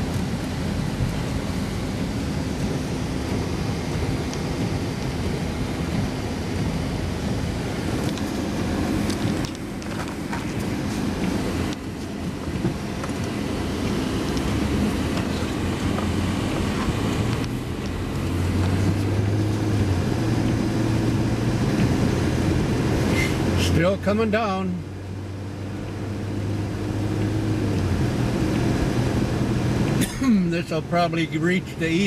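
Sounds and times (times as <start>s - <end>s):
vehicle engine running: 0.0s - 32.0s
constant hiss: 27.3s - 32.0s.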